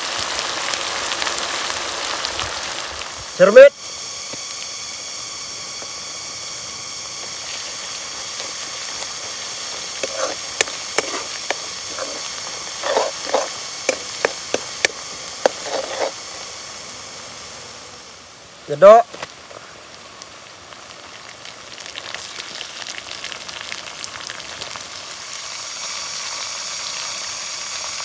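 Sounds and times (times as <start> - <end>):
onions sizzling in wok: 0.0 - 28.0
metal spatula clinking and scraping: 10.0 - 14.7.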